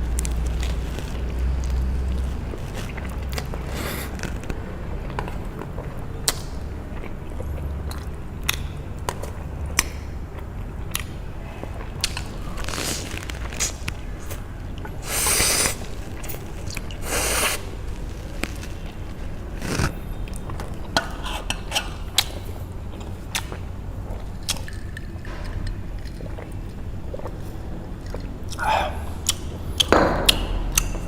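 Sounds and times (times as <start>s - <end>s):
low steady hum: 0.0s - 31.0s
wet squishy chewing: 0.1s - 29.9s
slurping noodles: 2.4s - 4.4s, 14.9s - 20.0s.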